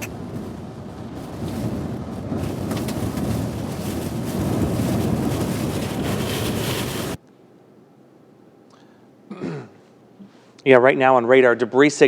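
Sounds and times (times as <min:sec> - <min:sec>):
strong wind buffeting microphone: 0:00.0 - 0:07.2.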